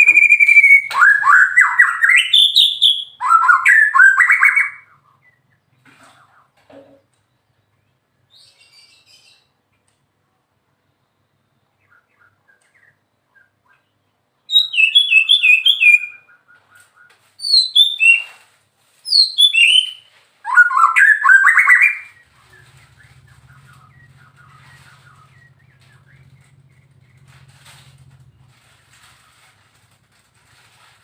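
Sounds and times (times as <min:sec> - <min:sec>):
songbird singing whistles: 0:00.0 - 0:05.6, 0:11.6 - 0:18.4, 0:19.0 - 0:27.2
faint low hum: 0:22.0 - 0:31.0.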